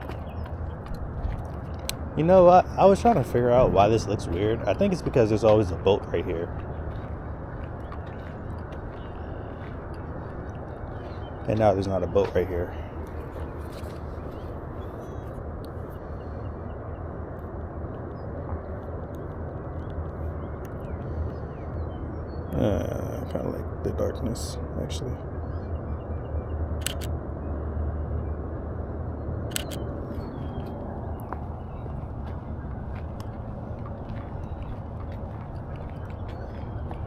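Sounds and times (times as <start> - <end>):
low rumbling background noise: 0.0 - 37.0
camera shutter double click: 26.8 - 27.1, 29.5 - 29.8.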